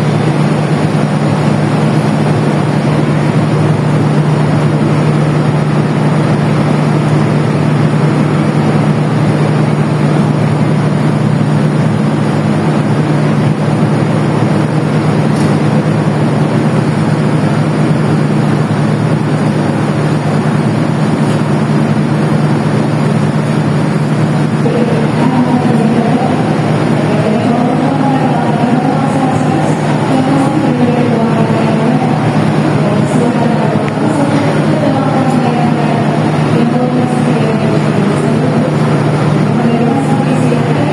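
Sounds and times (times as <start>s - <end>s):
train diesel engine droning: 0.0s - 40.9s.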